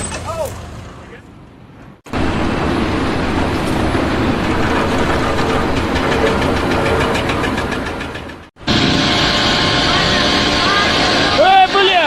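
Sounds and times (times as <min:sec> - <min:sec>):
heavy machinery rumbling: 0:02.1 - 0:12.0
rapid regular clatter: 0:03.6 - 0:08.6.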